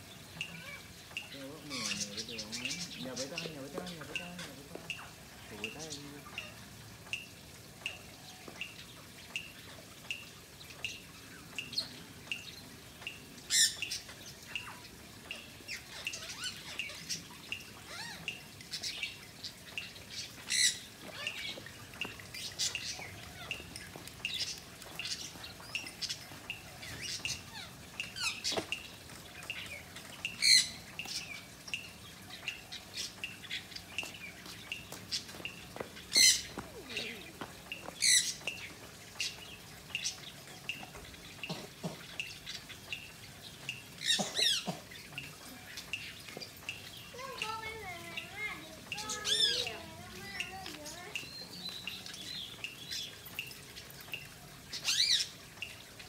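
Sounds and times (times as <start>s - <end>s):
birds chirping: 0.0s - 56.0s
sharp bird calls: 13.5s - 43.1s.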